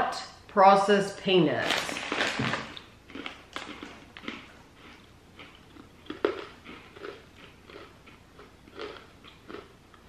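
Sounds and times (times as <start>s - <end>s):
crunching and chewing pretzel: 1.6s - 10.0s.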